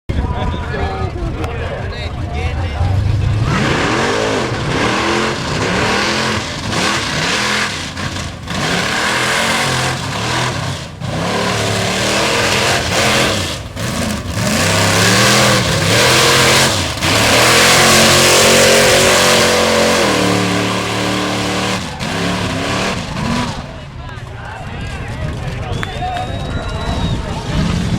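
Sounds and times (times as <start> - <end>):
off-road engine revving: 0.6 - 24.2, 24.9 - 27.9.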